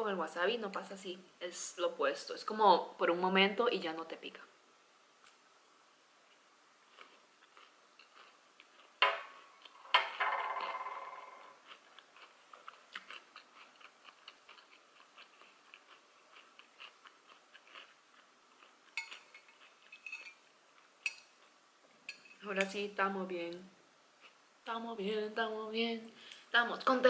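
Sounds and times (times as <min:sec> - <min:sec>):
wet chewing sounds: 0:06.3 - 0:09.8, 0:11.5 - 0:20.0.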